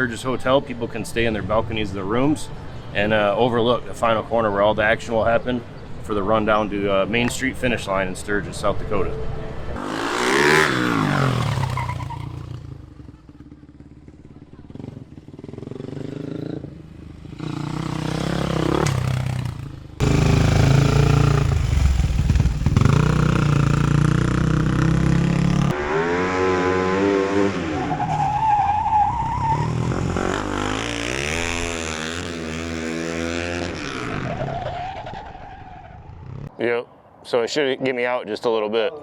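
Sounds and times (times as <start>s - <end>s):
motorcycle engine revving: 9.8s - 35.4s.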